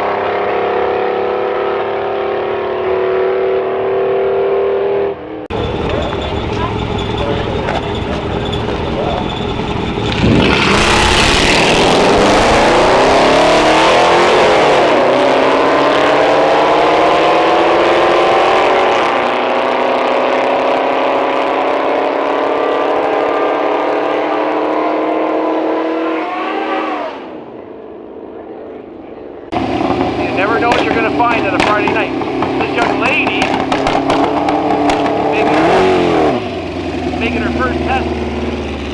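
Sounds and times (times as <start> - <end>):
car engine accelerating hard: 0.0 - 27.5, 29.5 - 38.9
car engine idling: 5.5 - 13.6, 29.5 - 38.9.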